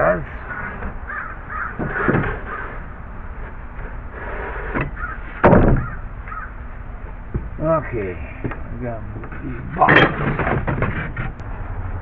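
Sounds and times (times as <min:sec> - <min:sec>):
wood knocking: 0:04.7 - 0:06.4, 0:09.2 - 0:11.4.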